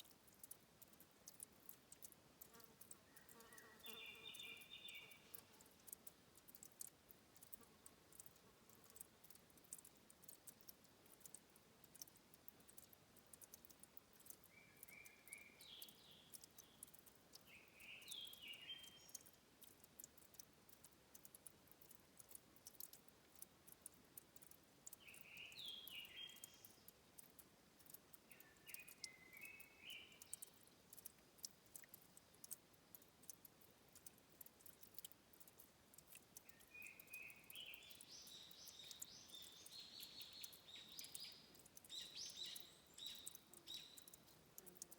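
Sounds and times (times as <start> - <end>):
faint birdsong: 0.0 - 23.0, 24.4 - 44.9
water dripping: 0.0 - 44.9.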